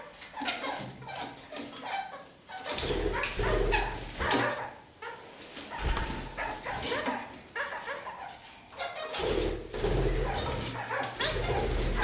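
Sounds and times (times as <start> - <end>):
parakeets chattering: 0.0 - 12.0.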